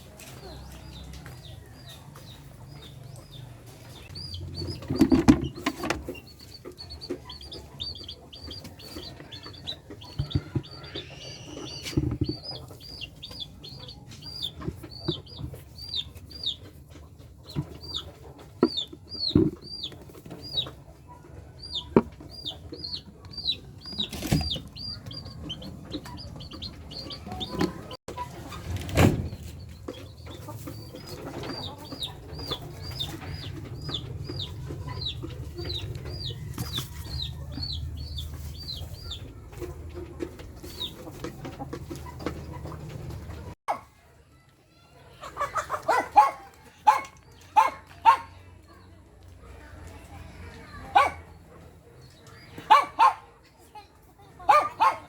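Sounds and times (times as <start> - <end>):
chickens chirping: 0.0 - 55.0
loud knocks and thumps: 4.4 - 6.2, 10.1 - 10.8, 11.8 - 12.6, 18.6 - 19.8.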